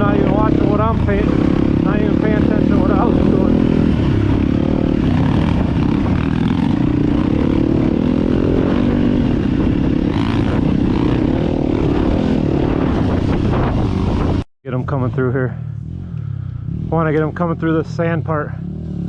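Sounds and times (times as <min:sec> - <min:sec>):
wind rushing over microphone: 0:00.0 - 0:14.5
dirt bike engine running: 0:00.0 - 0:19.0.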